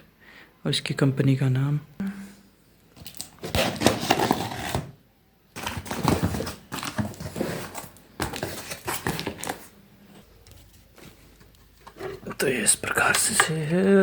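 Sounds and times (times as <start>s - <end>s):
packaging rustling and crinkling: 3.0s - 4.9s, 5.6s - 12.4s.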